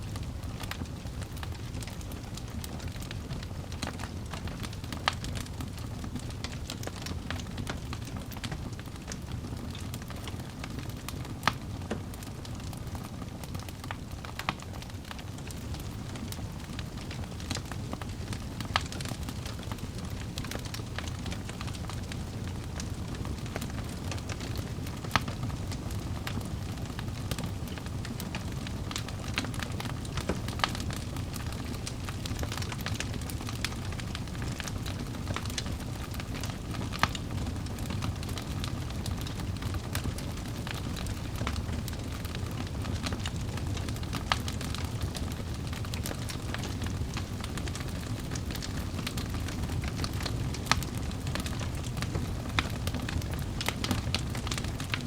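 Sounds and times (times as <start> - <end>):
logs crackling and popping: 0.0 - 55.0
low rumble of flames: 0.0 - 55.0.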